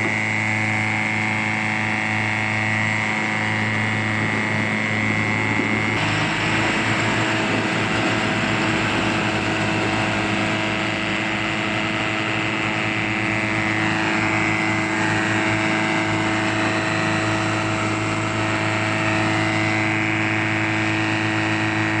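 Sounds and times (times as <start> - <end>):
rising and falling whines: 0.0 - 22.0
truck engine running: 0.0 - 22.0.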